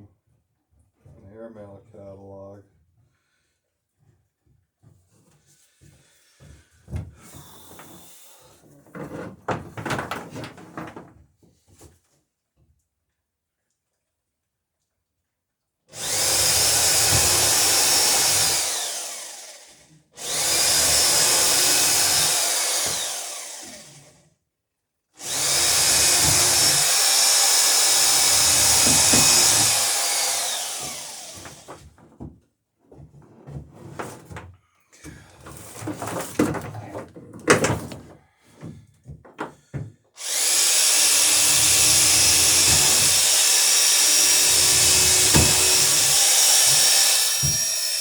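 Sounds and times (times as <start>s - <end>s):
electric drill whining: 16.0s - 24.2s, 25.2s - 31.8s, 40.2s - 48.0s.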